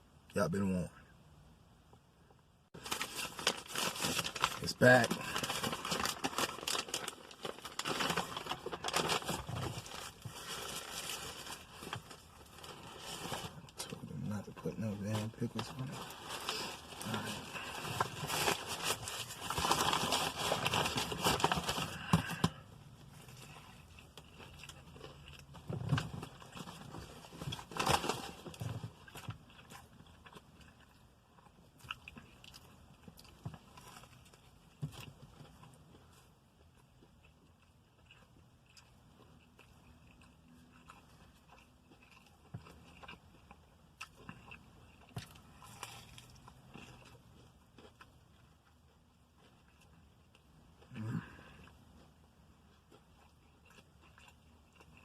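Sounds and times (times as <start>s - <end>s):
paper wrapper crinkling: 2.8s - 13.6s, 15.1s - 22.5s
person chewing food: 21.0s - 27.7s, 28.5s - 55.0s.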